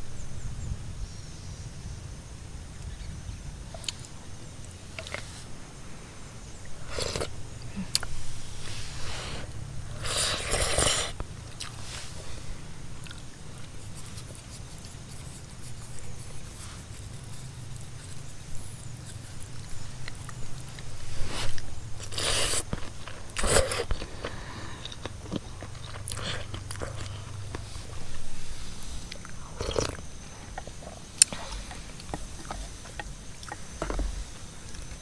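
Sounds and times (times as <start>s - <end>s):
steady low hum: 0.0s - 35.0s
crunching and rustling: 3.6s - 35.0s.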